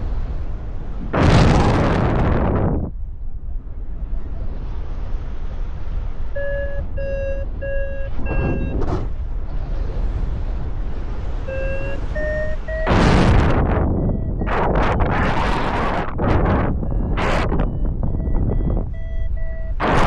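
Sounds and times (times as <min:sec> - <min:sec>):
wind rumble on microphone: 0:00.0 - 0:20.0
variometer beeping: 0:06.3 - 0:09.0, 0:11.5 - 0:20.0.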